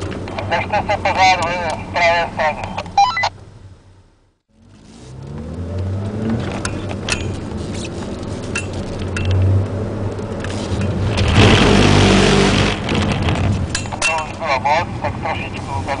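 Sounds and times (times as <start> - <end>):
car engine heard from inside cabin: 0.0 - 12.9
rushing noise: 10.4 - 16.0.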